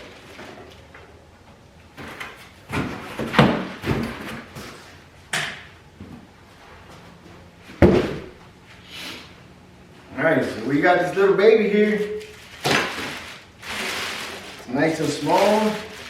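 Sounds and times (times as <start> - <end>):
knocks and thumps on cardboard: 7.8 - 8.3.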